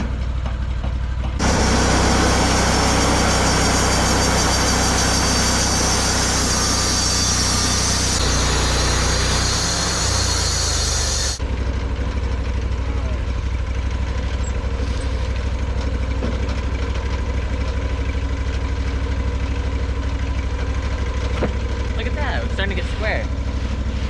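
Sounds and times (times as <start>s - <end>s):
sawmill engine running: 1.2s - 24.0s
saw blade hissing through wood: 1.4s - 11.4s.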